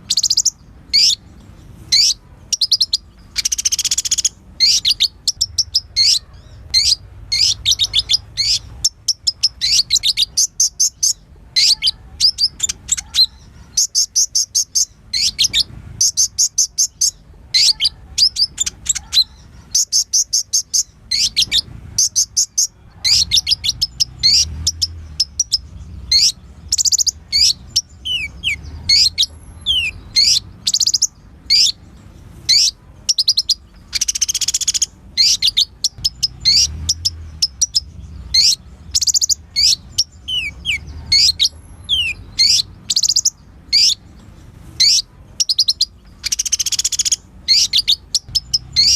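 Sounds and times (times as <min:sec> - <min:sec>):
bird chirping: 0:00.0 - 0:48.9.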